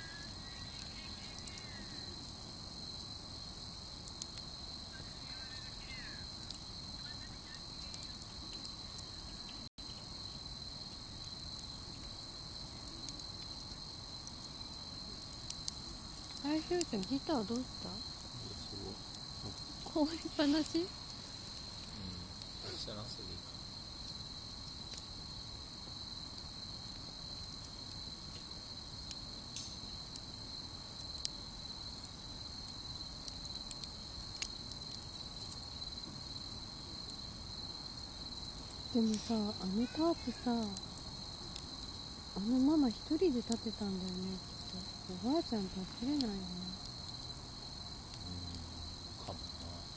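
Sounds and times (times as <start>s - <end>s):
campfire pops and crackles: 0.0s - 49.9s
crickets chirping: 0.0s - 49.9s.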